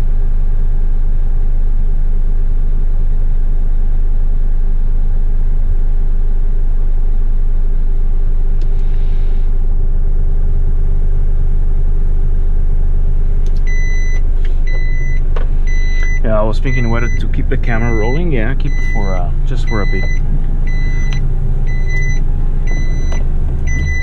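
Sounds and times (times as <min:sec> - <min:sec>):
truck diesel engine running: 0:12.9 - 0:24.0.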